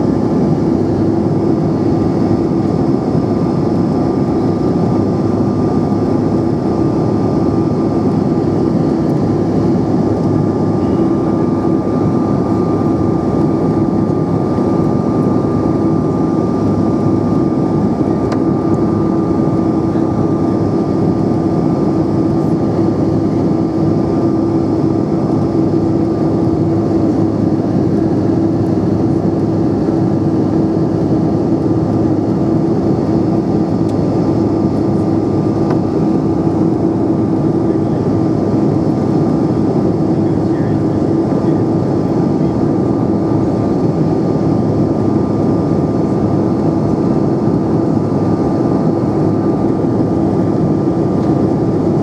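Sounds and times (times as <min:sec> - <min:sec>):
jet cabin noise in flight: 0:00.0 - 0:52.0.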